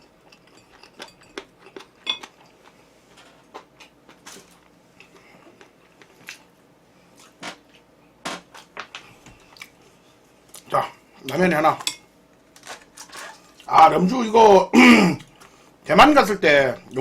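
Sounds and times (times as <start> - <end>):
tableware clicking and clinking: 0.3 - 2.6.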